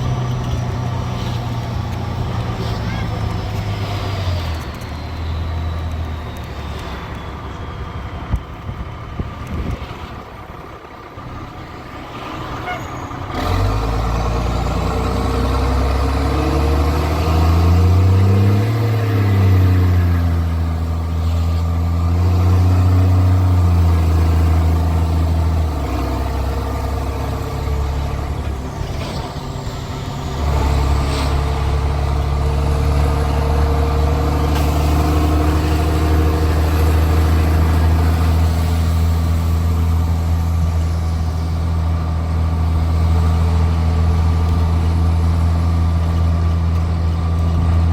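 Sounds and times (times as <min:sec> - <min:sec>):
diesel engine under load: 0:00.0 - 0:47.9.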